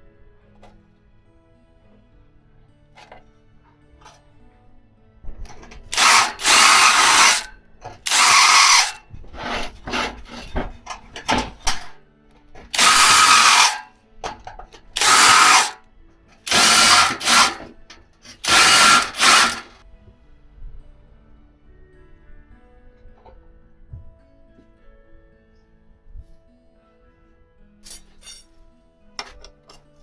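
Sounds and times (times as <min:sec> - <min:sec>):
scraping and handling noises: 0:05.5 - 0:15.8
electric drill boring through steel: 0:05.9 - 0:09.0, 0:12.7 - 0:13.9, 0:14.9 - 0:15.8, 0:16.4 - 0:19.8.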